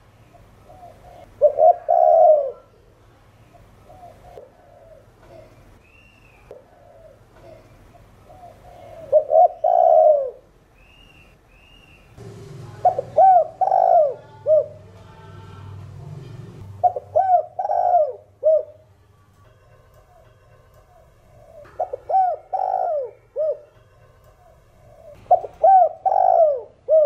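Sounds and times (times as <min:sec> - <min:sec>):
dove cooing: 0:00.4 - 0:02.8, 0:03.6 - 0:05.6, 0:06.5 - 0:10.5, 0:12.8 - 0:15.7, 0:16.6 - 0:18.9, 0:20.9 - 0:23.8, 0:24.4 - 0:27.0
faint high bird chirps: 0:05.3 - 0:10.0.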